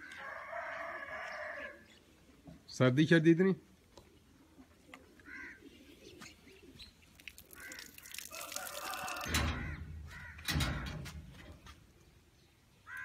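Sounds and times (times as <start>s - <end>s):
farmyard birds calling: 0.0s - 13.0s
low rumbles of wind: 9.2s - 13.0s.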